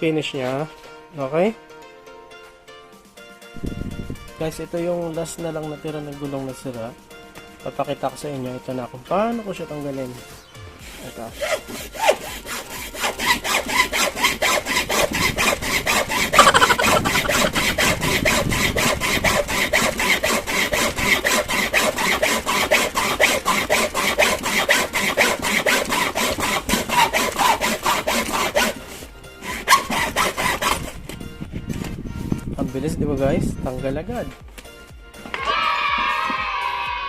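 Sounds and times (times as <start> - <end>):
hacksaw sawing: 10.8 - 31.0.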